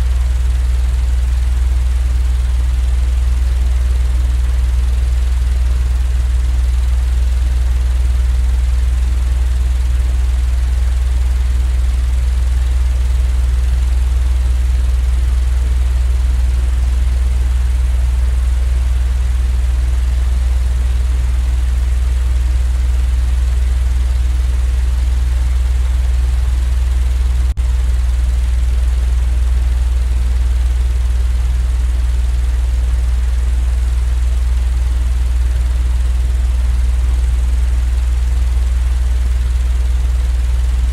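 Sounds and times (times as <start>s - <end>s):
low rumbling drone: 10.1s - 37.4s.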